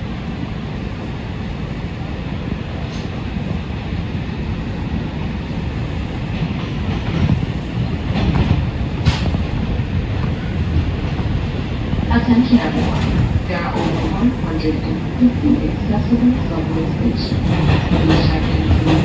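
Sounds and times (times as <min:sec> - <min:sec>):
subway train wheels rumbling on rail: 0:00.0 - 0:19.0.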